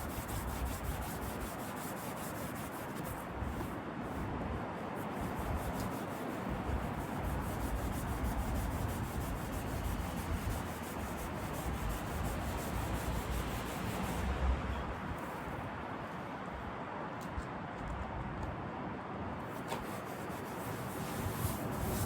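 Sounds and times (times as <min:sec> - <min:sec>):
hand sanding: 0:00.0 - 0:03.8, 0:05.0 - 0:14.3, 0:19.5 - 0:22.0.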